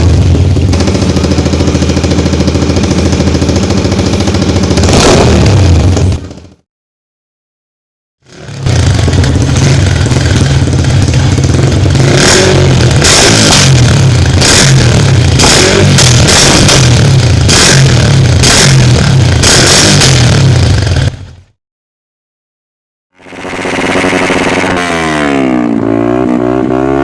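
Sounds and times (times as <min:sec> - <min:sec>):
motorcycle engine revving: 0:00.0 - 0:06.6, 0:08.2 - 0:21.5, 0:23.2 - 0:27.0.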